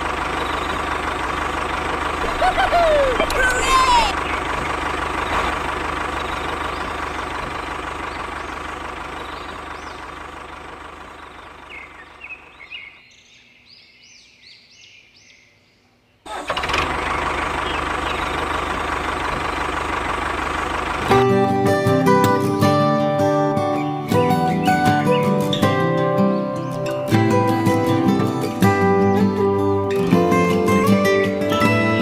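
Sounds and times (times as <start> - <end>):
strummed acoustic guitar music: 21.0 - 32.0.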